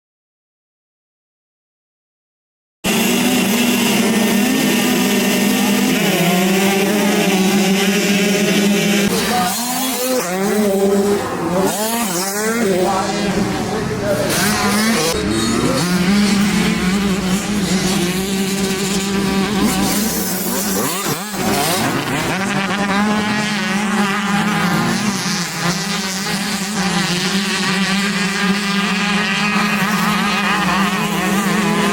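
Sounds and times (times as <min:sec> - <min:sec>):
dirt bike engine at high revs: 0:02.8 - 0:31.9.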